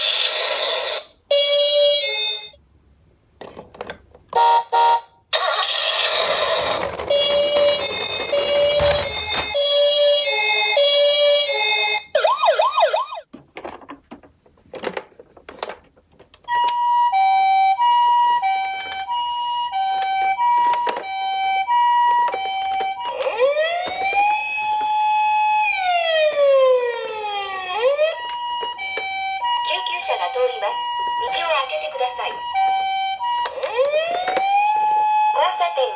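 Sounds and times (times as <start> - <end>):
toy siren warble: 5.4 - 9.6, 12.1 - 13.2, 16.6 - 35.9
toy two-tone siren: 5.4 - 13.2, 16.5 - 35.9
rising and falling siren wail: 12.2 - 13.2, 23.3 - 28.3.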